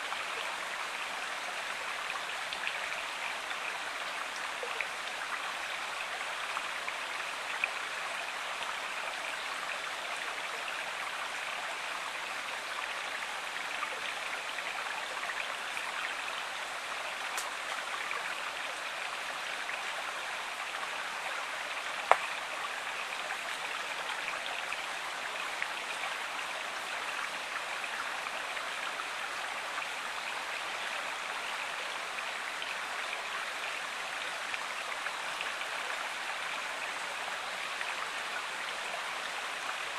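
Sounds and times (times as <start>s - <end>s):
stream flowing: 0.0s - 39.9s
faint sharp clicks: 17.3s - 17.8s, 22.0s - 22.4s.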